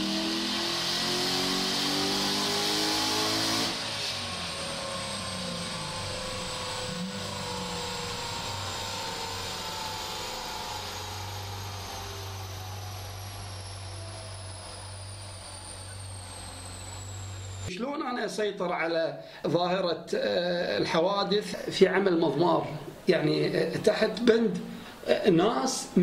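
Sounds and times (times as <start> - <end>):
car engine droning: 0.0 - 17.7.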